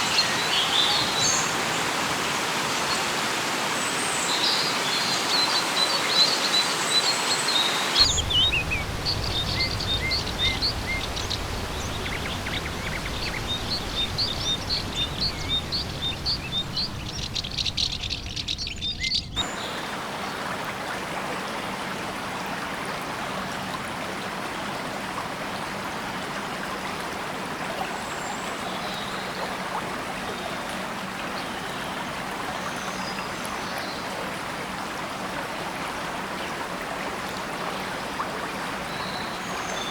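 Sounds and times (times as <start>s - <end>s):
steady hiss: 7.9s - 18.6s
birds chirping and whistling: 8.0s - 19.4s
low rumble: 8.0s - 19.4s.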